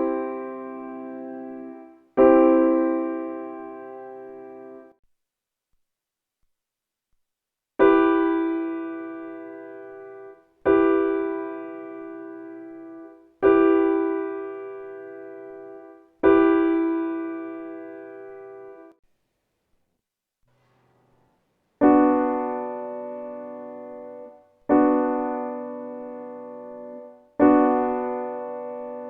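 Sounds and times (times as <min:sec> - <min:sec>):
piano chords: 0:00.0 - 0:04.9, 0:07.8 - 0:19.0, 0:21.8 - 0:29.0.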